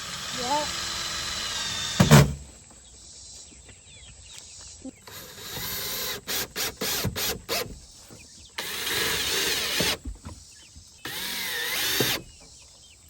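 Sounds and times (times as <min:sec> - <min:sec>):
cordless drill driving screws: 0:00.0 - 0:02.4, 0:05.0 - 0:07.8, 0:08.6 - 0:10.0, 0:11.0 - 0:12.4.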